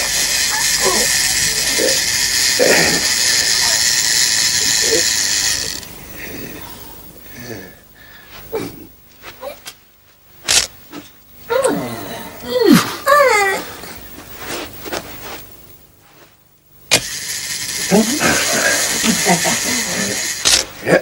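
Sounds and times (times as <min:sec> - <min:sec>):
small machine running: 0:00.0 - 0:08.3, 0:16.6 - 0:21.0.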